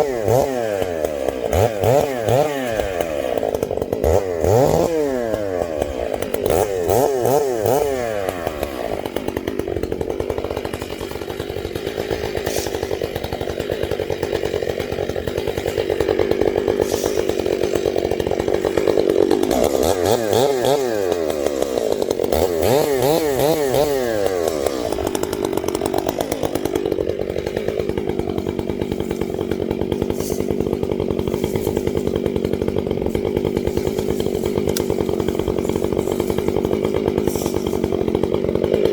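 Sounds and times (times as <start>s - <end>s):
chainsaw running at high revs: 0.0s - 38.9s.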